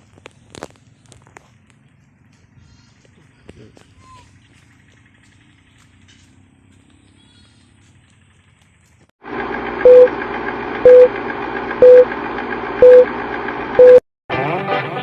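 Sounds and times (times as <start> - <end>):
short electronic beeps: 9.8 - 10.1, 10.8 - 11.1, 11.8 - 12.1, 12.8 - 13.1, 13.8 - 14.0
music: 14.3 - 15.0.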